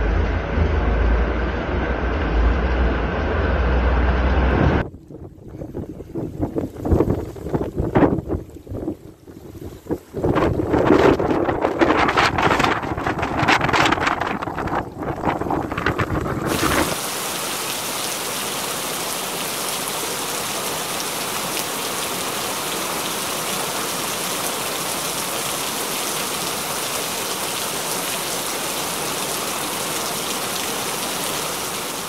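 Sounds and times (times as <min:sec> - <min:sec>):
wind buffeting microphone: 0:04.2 - 0:17.0
heavy rain pouring: 0:09.6 - 0:32.0.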